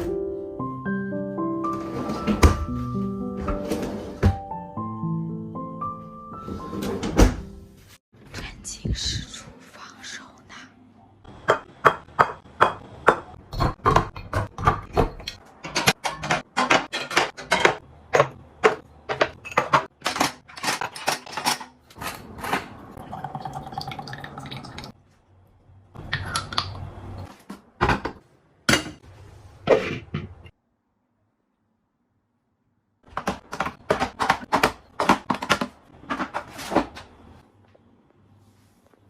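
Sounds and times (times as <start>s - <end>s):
kitchenware clinking and clattering: 11.5s - 24.9s, 27.8s - 29.0s, 33.2s - 37.1s.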